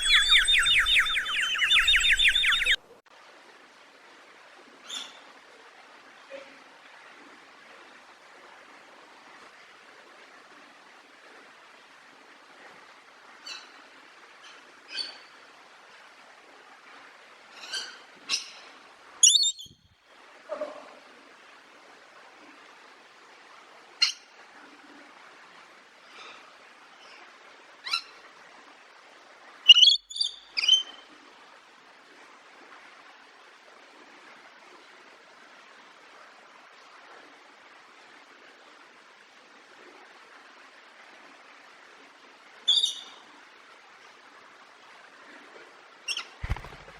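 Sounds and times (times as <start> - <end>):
small bird chirping: 0.0 - 2.8, 19.2 - 19.8, 29.7 - 30.9, 46.1 - 46.9.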